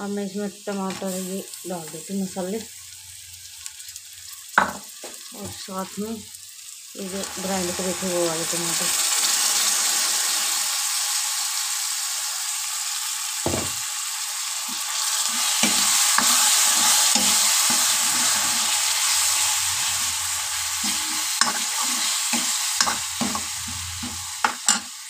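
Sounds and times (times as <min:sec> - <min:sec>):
masala sizzling in a pan: 0:00.0 - 0:25.0
spatula scraping and knocking pan: 0:15.5 - 0:18.7, 0:19.8 - 0:24.9.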